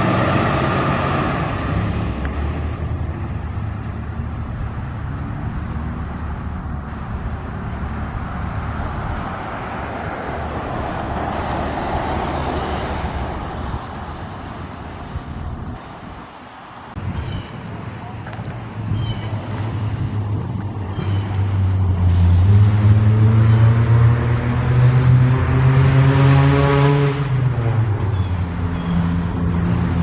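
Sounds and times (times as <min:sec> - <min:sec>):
road noise: 0:00.0 - 0:30.0.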